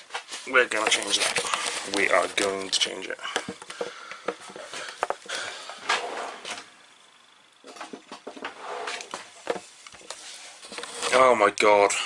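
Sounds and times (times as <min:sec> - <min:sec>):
handling clicks and knocks: 0:00.7 - 0:05.6.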